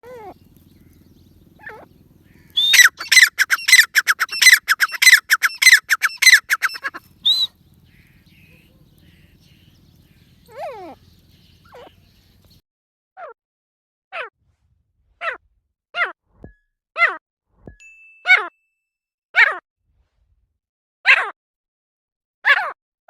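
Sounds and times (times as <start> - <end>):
faint falling bird call: 0.0 - 12.6
francolin shrill falling notes: 2.6 - 7.5.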